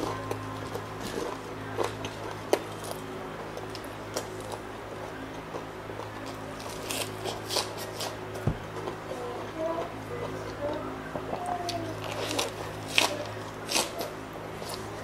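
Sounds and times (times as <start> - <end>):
steady low hum: 0.0 - 15.0
lettuce leaves crinkling and snapping: 6.0 - 8.2, 11.7 - 15.0.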